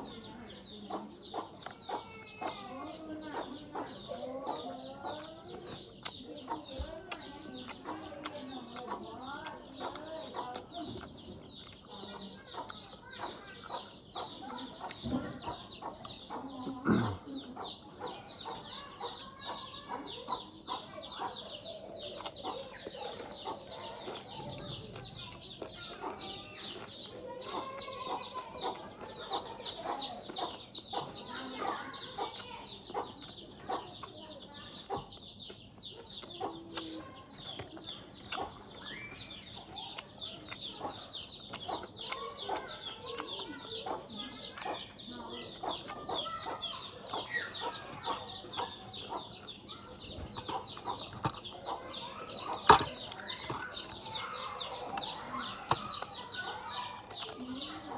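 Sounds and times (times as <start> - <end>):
chickens clucking: 0.0 - 57.9.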